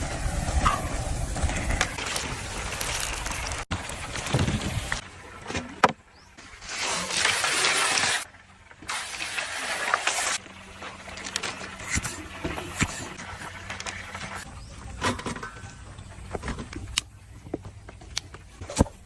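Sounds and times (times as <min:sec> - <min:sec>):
hot oil sizzling: 0:06.8 - 0:14.5.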